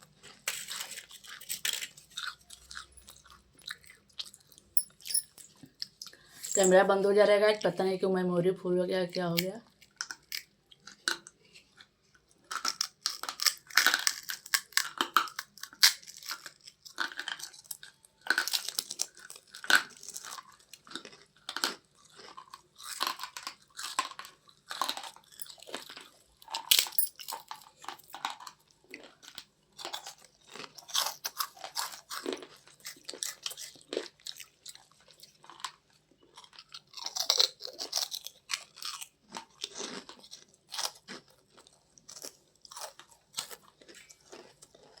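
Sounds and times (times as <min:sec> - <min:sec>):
person chewing crunchy snack: 0:00.0 - 0:06.6, 0:09.7 - 0:45.0.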